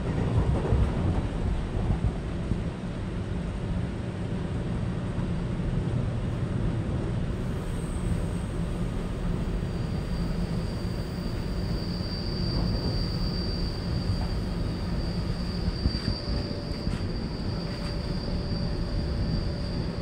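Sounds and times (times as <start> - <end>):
train carriage low rumble: 0.0 - 20.0
faint high whine: 7.2 - 20.0.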